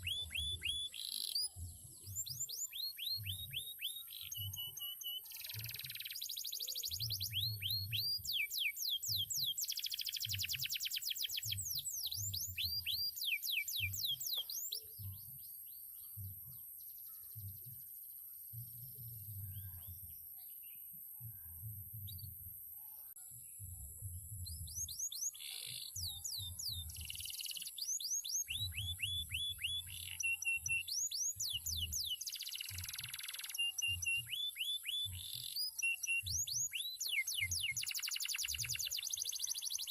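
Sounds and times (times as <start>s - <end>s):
canary singing trills: 0.0s - 15.4s, 24.6s - 39.9s.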